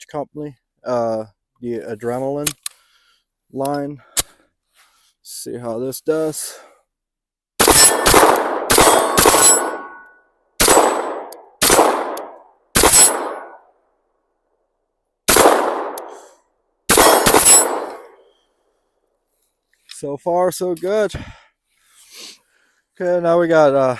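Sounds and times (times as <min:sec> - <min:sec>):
pistol shots with echo: 0:07.6 - 0:13.6, 0:15.3 - 0:16.3, 0:16.9 - 0:18.2.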